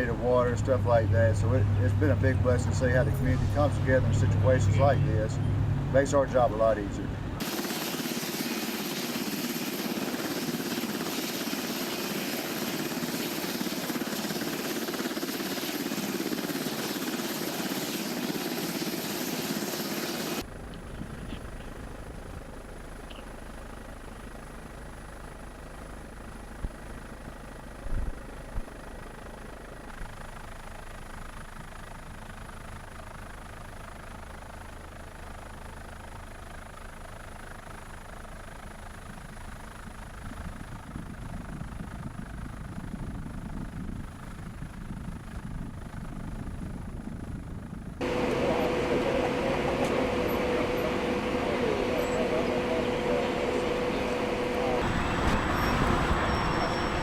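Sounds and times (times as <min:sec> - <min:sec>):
loud steady machine noise: 0:00.0 - 0:57.0
thin high whine: 0:48.0 - 0:57.0.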